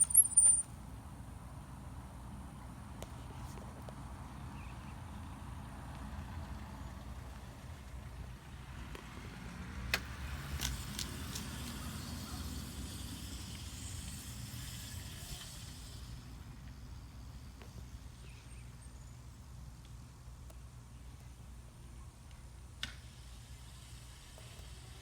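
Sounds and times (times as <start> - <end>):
hiss of passing vehicle: 3.1 - 18.9, 22.8 - 25.0
motor vehicle passing: 5.5 - 16.6.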